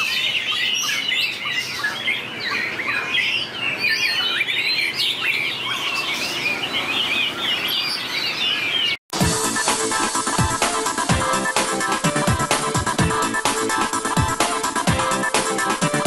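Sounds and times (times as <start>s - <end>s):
bird singing whistled trills: 0.0s - 9.0s.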